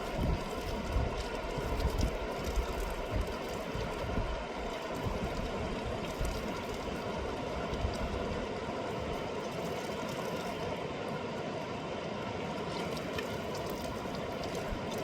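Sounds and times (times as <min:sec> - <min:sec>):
wind buffeting microphone: 0:00.0 - 0:08.4
fast-flowing river rushing: 0:02.2 - 0:15.0.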